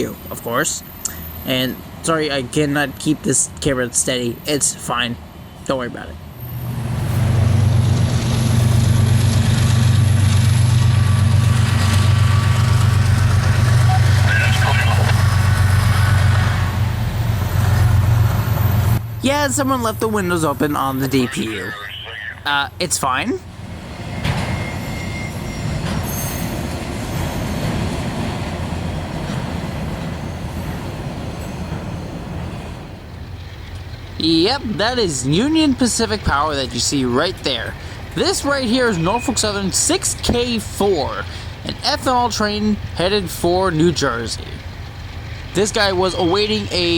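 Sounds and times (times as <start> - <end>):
train wheels rumbling on rails: 0.0 - 21.1, 23.5 - 46.9
diesel locomotive engine running: 0.0 - 46.9
high wheel squeal: 24.5 - 27.6.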